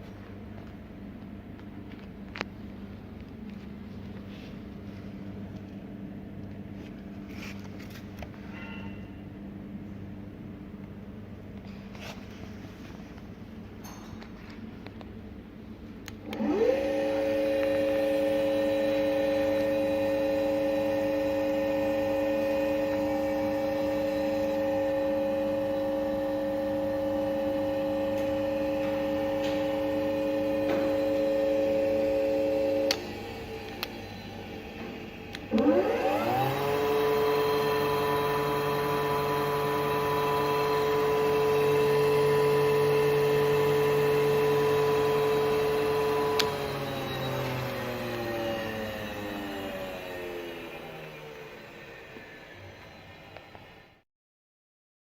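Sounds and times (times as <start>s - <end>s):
drill motor whining: 16.3s - 54.0s.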